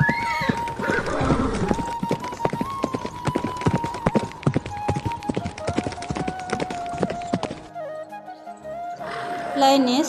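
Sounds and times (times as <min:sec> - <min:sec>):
horse hooves clip-clopping: 0:00.0 - 0:07.8.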